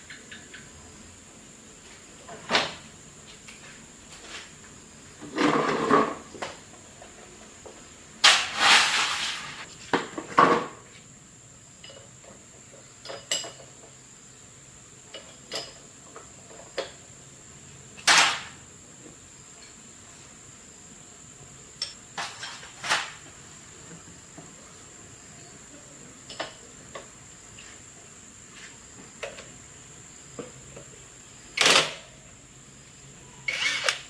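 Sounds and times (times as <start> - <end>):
hard objects scraping: 8.2 - 9.7.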